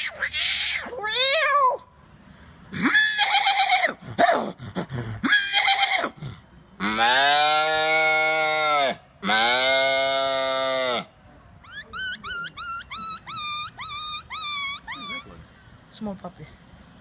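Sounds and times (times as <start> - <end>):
man imitating animal calls: 2.8 - 15.3.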